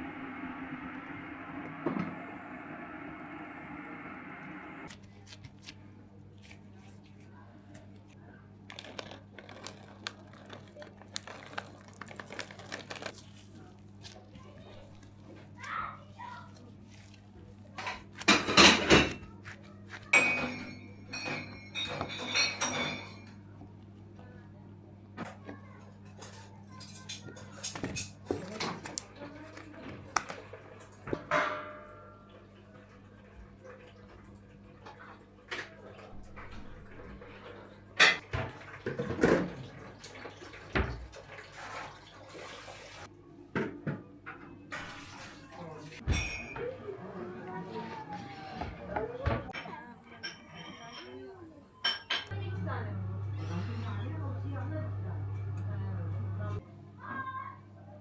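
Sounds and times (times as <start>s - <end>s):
faint low hum: 0.0s - 17.7s
tableware clinking: 20.1s - 23.4s, 46.0s - 47.2s, 49.6s - 52.3s.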